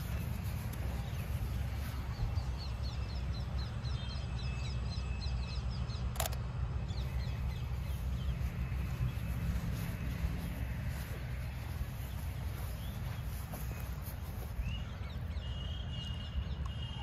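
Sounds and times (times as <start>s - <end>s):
small birds chirping: 0.0s - 17.0s
camera shutter click: 6.1s - 6.4s.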